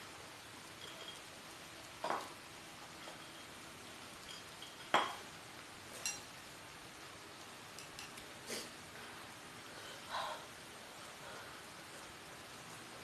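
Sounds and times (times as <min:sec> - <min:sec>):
faint steady hiss: 0:00.0 - 0:13.0
utensils clinking against a dish: 0:06.0 - 0:06.3.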